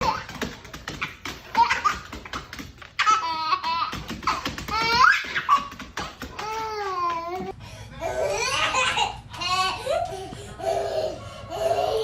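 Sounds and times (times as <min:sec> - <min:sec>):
taps and clatter: 0:00.0 - 0:07.6
baby laughing: 0:00.0 - 0:12.0.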